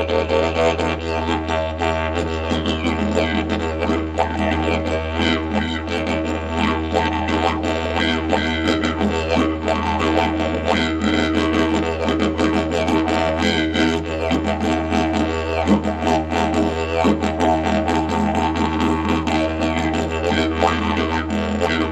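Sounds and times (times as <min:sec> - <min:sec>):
didgeridoo low drone: 0:00.0 - 0:21.9.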